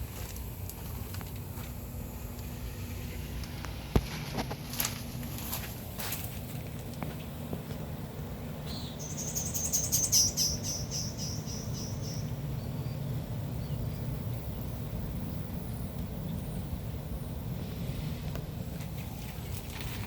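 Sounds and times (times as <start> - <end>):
steady low hum: 0.0 - 20.0
bird trilling: 8.7 - 12.9.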